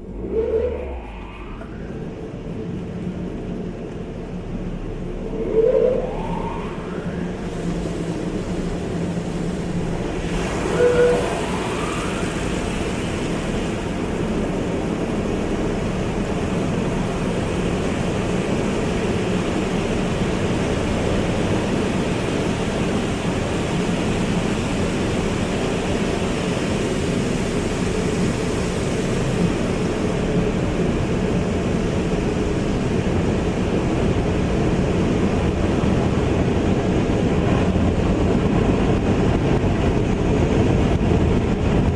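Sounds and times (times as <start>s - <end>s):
car wash spraying water: 7.2s - 38.9s.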